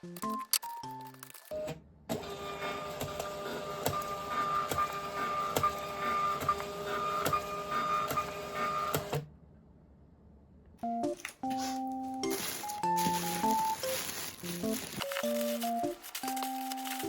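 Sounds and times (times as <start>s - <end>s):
printer whirring: 2.1s - 9.2s.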